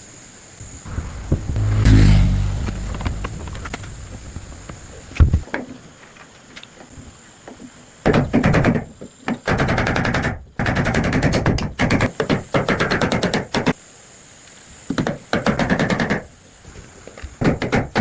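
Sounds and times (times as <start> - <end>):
dull thump: 0.9 - 5.4.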